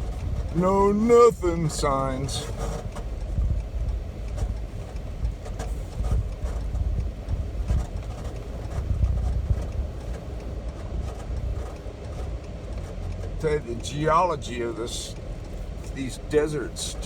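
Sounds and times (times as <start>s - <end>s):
truck engine and tyres rumbling: 0.0s - 17.0s
light knocks and rattles: 1.7s - 13.4s.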